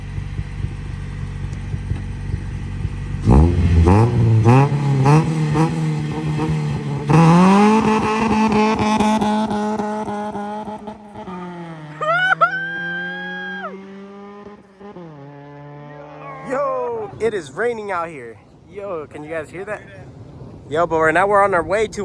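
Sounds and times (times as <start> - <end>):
car engine idling and revving: 0.0 - 16.4.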